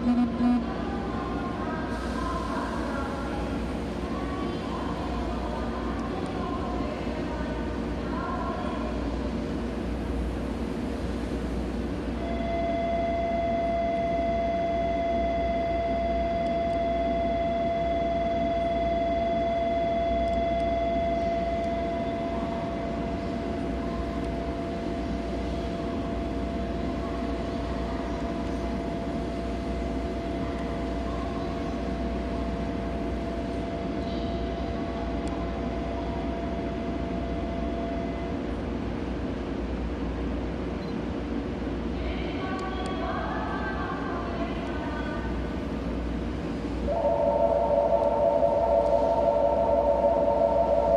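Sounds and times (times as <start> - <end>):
train humming with held tones: 0.0 - 50.9.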